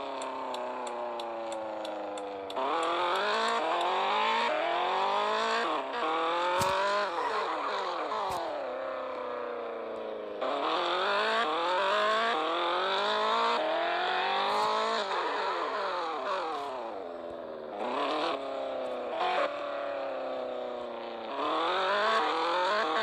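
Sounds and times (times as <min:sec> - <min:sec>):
sharp clicks: 0:00.0 - 0:03.9
car engine accelerating: 0:00.0 - 0:23.0.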